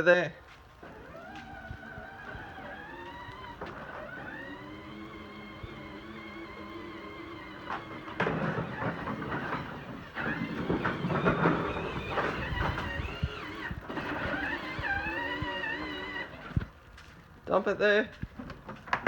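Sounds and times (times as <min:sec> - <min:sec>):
toy electric motor whining: 0:00.8 - 0:16.7
rattling and scraping through snow: 0:00.9 - 0:17.2.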